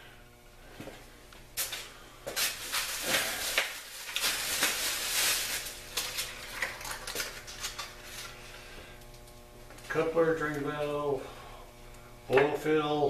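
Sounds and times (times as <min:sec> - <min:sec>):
plastic and cardboard rustling: 0:02.4 - 0:08.3.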